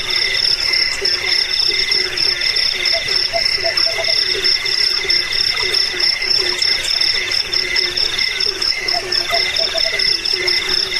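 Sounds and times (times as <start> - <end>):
crickets and insects trilling: 0.0 - 10.9
low repeating insect call: 0.0 - 10.9.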